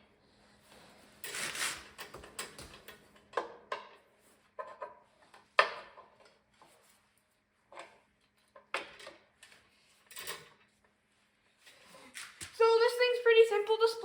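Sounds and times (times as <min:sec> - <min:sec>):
tool scraping metal: 0:01.2 - 0:02.2.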